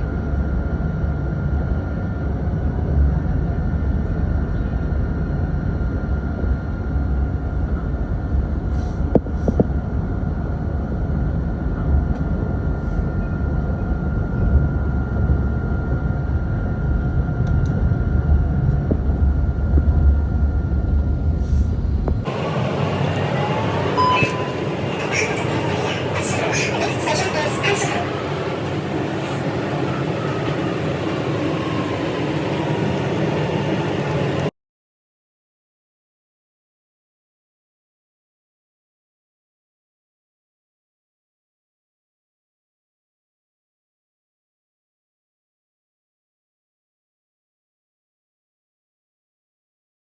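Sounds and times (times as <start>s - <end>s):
tram rumbling: 0.0s - 34.5s
thin steady whine: 22.3s - 34.5s.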